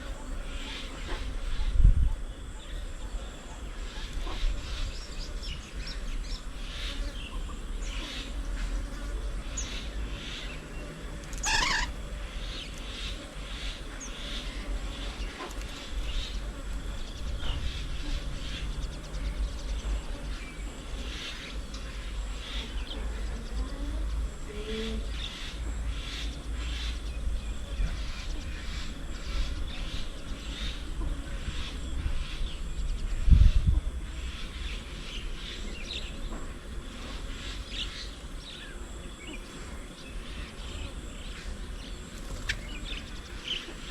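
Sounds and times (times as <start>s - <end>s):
birds chirping: 0.0s - 43.9s
bird warbling call: 9.6s - 13.2s.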